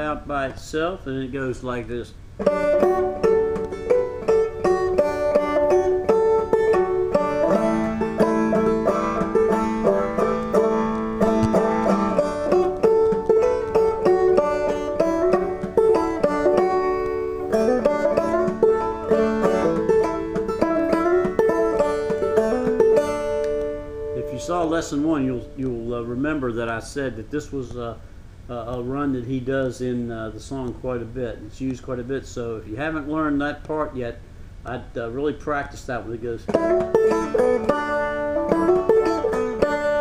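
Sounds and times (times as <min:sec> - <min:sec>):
banjo plucked melody: 0:02.4 - 0:26.8, 0:36.5 - 0:40.0.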